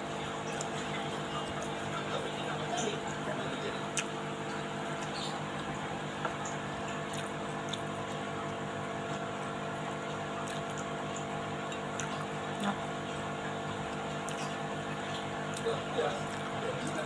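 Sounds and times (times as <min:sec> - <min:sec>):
steady background hum: 0:00.0 - 0:17.0
chewing: 0:03.8 - 0:05.4, 0:06.2 - 0:12.4, 0:13.9 - 0:17.0.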